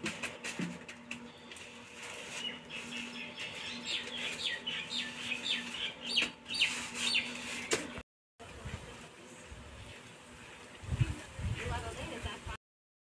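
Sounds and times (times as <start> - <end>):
birds chirping: 1.2 - 7.8.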